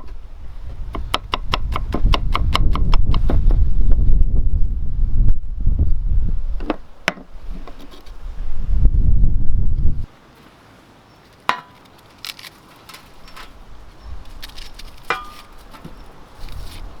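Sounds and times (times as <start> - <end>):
wind rumble on microphone: 0.0 - 10.1, 13.2 - 17.0
chopping knocks on wood: 0.9 - 3.5.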